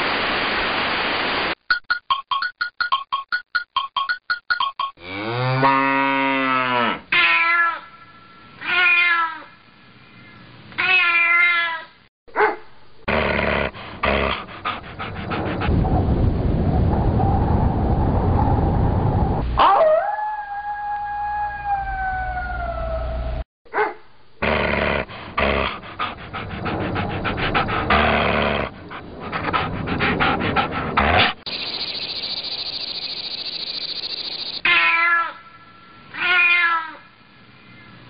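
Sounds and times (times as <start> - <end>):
meow-like calls: 8.6 - 9.5, 34.6 - 35.4, 36.1 - 37.1
animal howling: 19.6 - 23.4
rough noisy animal sounds: 24.4 - 31.8.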